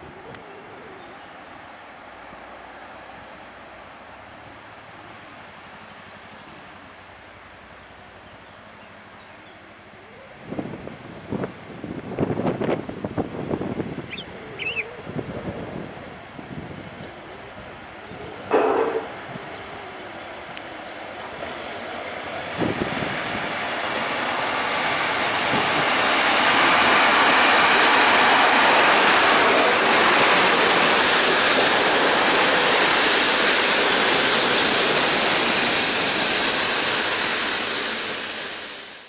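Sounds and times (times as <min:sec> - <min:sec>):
train wheels rushing on rail: 0:15.4 - 0:19.5, 0:20.2 - 0:39.0.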